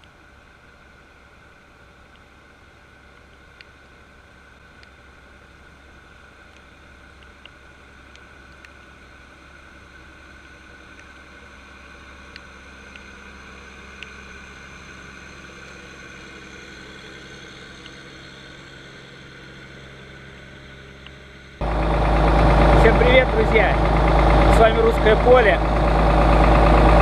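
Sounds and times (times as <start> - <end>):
tractor engine humming: 0.0 - 27.0
light ticks: 2.1 - 2.3, 6.5 - 8.8, 10.9 - 11.2, 12.2 - 13.2, 13.9 - 14.2, 17.8 - 18.0.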